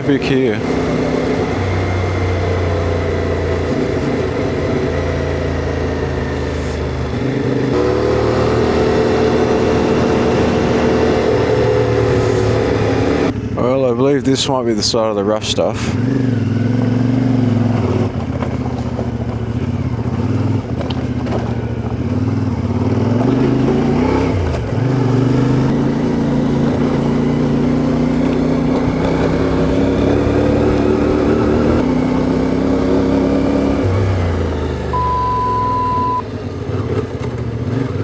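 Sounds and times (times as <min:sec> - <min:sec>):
motorcycle engine running: 0:00.0 - 0:38.0
steady beep: 0:35.0 - 0:36.2.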